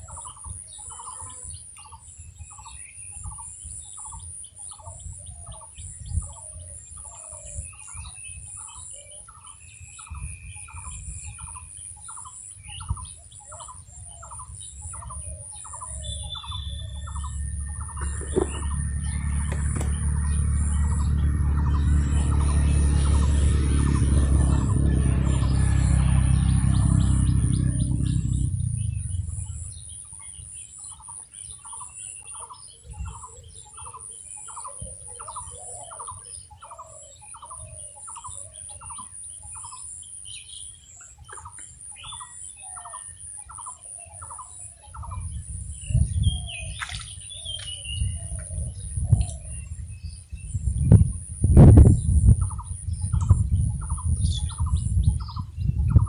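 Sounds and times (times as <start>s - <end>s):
bird calling: 12.8s - 45.3s
low droning rumble: 14.8s - 30.6s, 44.9s - 56.0s
steady high whine: 15.7s - 30.3s.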